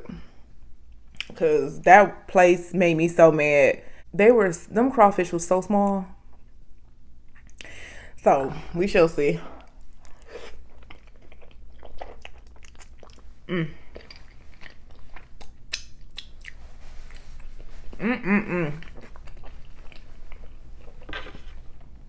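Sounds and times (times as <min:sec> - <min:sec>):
person chewing food: 0:09.6 - 0:22.0
wet mouth clicks and smacks: 0:15.4 - 0:16.6.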